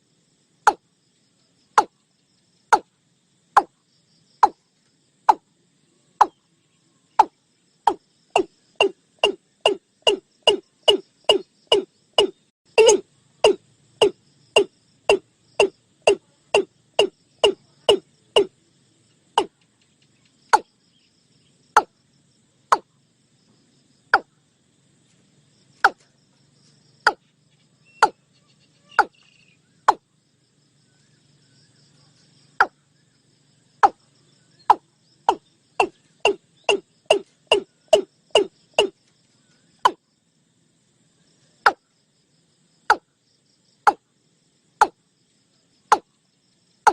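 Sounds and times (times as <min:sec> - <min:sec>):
bird calling hollow notes: 0:07.2 - 0:18.5, 0:22.7 - 0:22.9, 0:24.1 - 0:24.3, 0:27.9 - 0:28.2, 0:28.8 - 0:30.1, 0:34.6 - 0:38.9.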